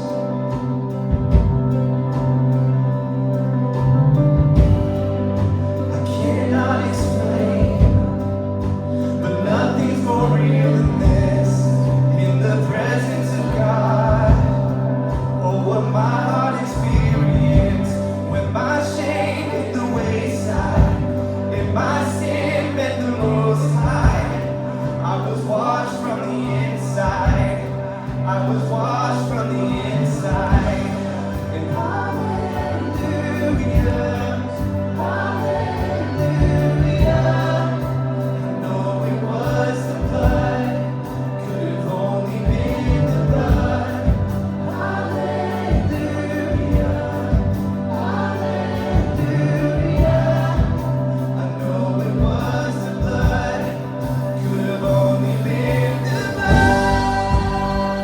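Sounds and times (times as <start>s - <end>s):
bass notes: 0.0s - 58.0s
voices singing together: 0.0s - 58.0s
worship band playing: 0.0s - 58.0s
drum hits: 56.3s - 58.0s.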